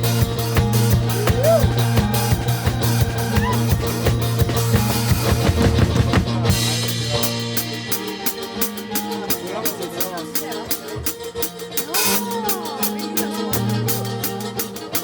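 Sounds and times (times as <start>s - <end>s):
bowed string melody: 0.0s - 15.0s
drum beat: 0.0s - 15.0s.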